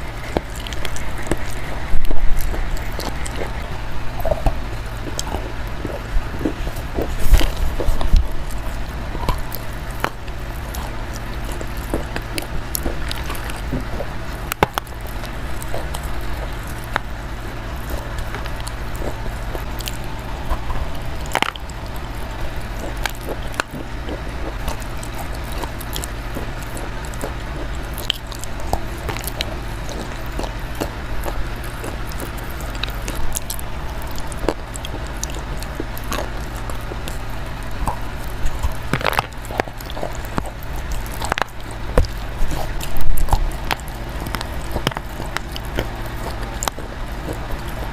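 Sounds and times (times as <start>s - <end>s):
biting and chewing: 0.0s - 47.9s
low hum: 0.0s - 47.9s
small crunching clicks: 0.0s - 47.9s.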